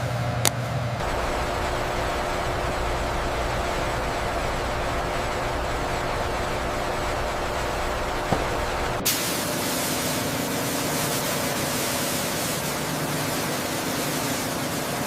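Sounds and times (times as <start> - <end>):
low rumble: 1.0 - 9.0
steady hiss: 1.0 - 15.0.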